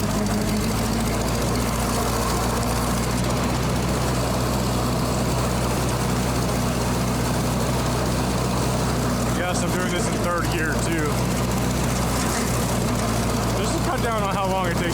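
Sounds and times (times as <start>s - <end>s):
tractor engine running under load: 0.0s - 14.9s.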